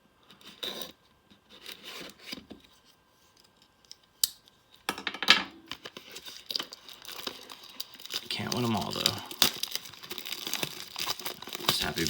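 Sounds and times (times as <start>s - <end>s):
wrapper rustling and crinkling: 5.7s - 12.0s.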